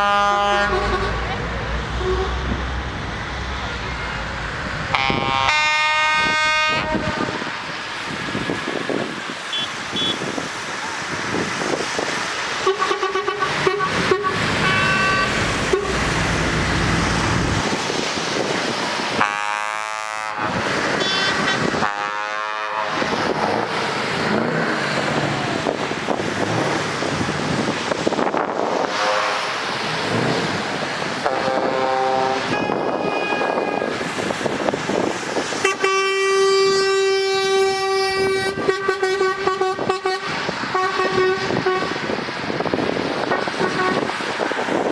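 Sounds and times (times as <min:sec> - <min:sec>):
truck horns: 0:00.0 - 0:02.8, 0:04.8 - 0:08.5, 0:09.4 - 0:10.4, 0:12.5 - 0:17.6, 0:19.2 - 0:25.8, 0:28.6 - 0:34.3, 0:35.5 - 0:42.2, 0:43.3 - 0:44.4
traffic noise: 0:00.0 - 0:44.9
vehicles passing with a whoosh: 0:00.0 - 0:44.9.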